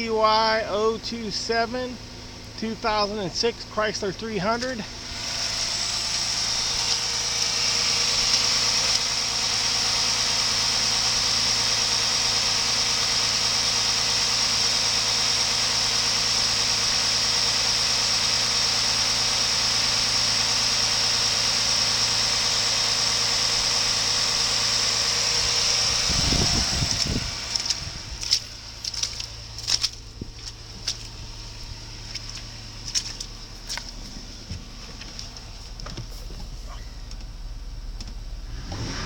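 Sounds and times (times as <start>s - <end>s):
car engine idling: 0.0s - 39.0s
high-pitched whine: 23.1s - 34.5s, 36.2s - 39.0s.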